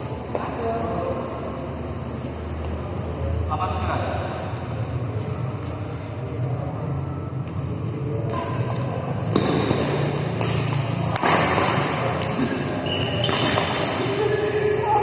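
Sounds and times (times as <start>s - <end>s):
shuttlecock hit with rackets: 9.3s - 12.6s.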